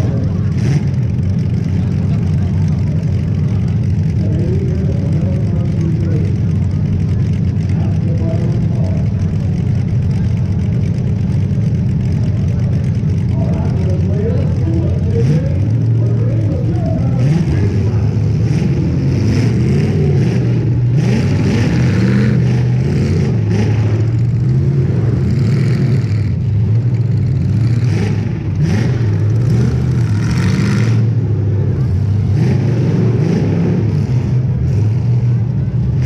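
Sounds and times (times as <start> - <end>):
car engine revving hard: 12.0 - 35.5.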